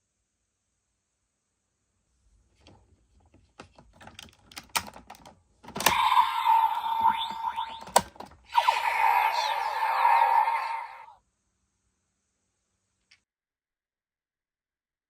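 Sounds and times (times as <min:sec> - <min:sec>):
plastic toy parts clicking: 0:04.0 - 0:06.2
electronic toy sound effects: 0:05.8 - 0:11.2
steady electronic beep: 0:05.9 - 0:11.1.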